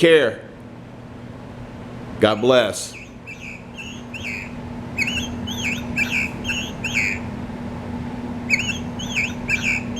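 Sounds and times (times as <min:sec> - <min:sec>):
steady low hum: 0:00.0 - 0:09.9
recorded birdsong chirps: 0:02.3 - 0:07.4, 0:08.4 - 0:09.9.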